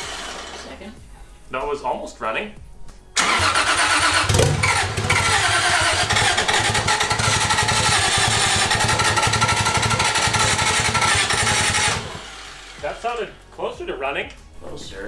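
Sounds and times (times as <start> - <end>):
car engine cranking and firing unevenly: 3.2 - 12.8.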